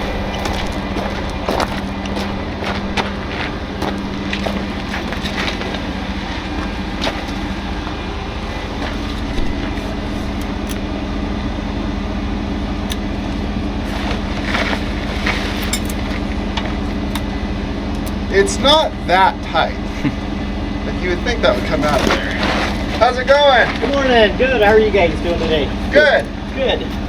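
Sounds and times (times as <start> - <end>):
sharp clicks and knocks: 0.0 - 5.8, 9.2 - 10.9, 17.9 - 18.2
diesel truck engine idling: 0.0 - 27.0.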